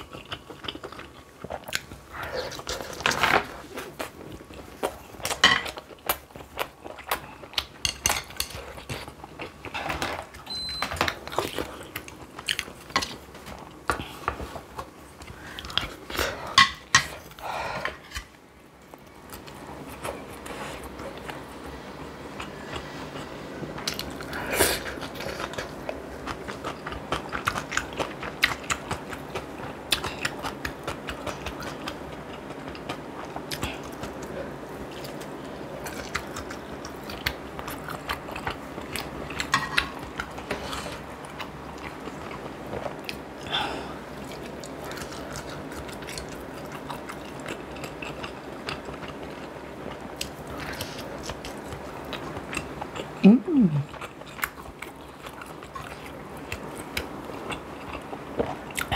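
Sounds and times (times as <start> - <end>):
chewing and biting food: 22.4 - 43.5, 44.1 - 53.2, 53.8 - 58.9.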